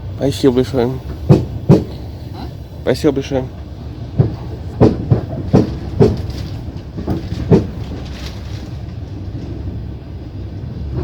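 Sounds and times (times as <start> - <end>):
train low rumble: 0.0 - 11.0
train wheels knocking over rail joints: 0.8 - 2.1, 3.5 - 9.7.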